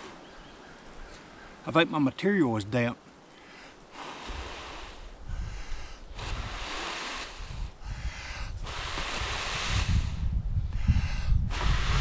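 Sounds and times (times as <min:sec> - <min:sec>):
person blowing breaths: 0:00.0 - 0:00.2, 0:03.4 - 0:12.0
wind rumble on microphone: 0:04.3 - 0:12.0.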